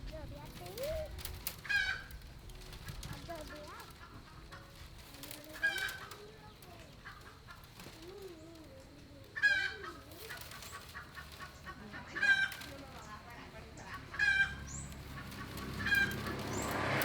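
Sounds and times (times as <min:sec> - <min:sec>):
chickens soft wavering calls: 0:01.4 - 0:17.0.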